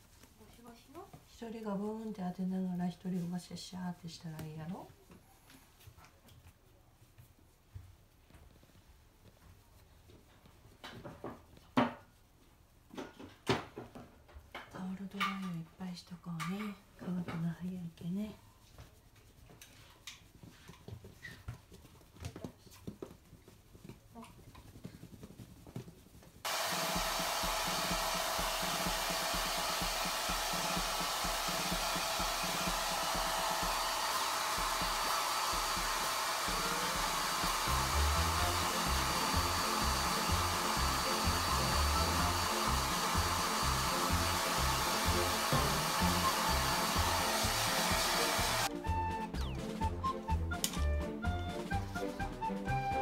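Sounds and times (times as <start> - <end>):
hair dryer blowing: 26.5 - 48.7
music with rhythmic bass line: 48.7 - 53.0.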